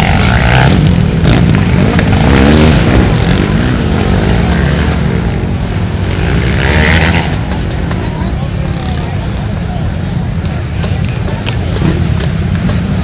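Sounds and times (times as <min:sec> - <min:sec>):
atv engines revving: 0:00.0 - 0:13.0.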